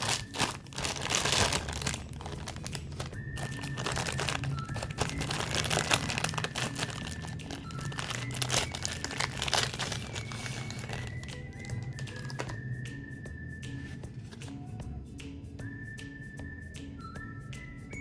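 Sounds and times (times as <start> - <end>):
snack packaging crinkling: 0.0 - 12.6.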